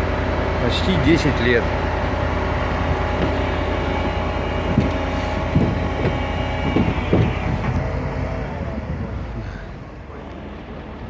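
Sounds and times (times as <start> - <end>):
engine running: 0.0 - 11.0
short knocks: 2.9 - 8.1.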